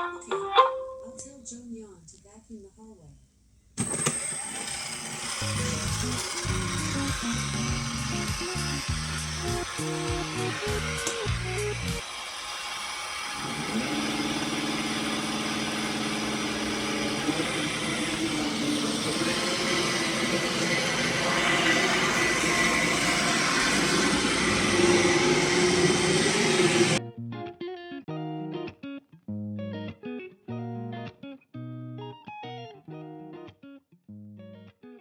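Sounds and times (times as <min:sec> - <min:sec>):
motor hum: 0:03.8 - 0:27.0
robot vacuum whirring: 0:03.8 - 0:27.0.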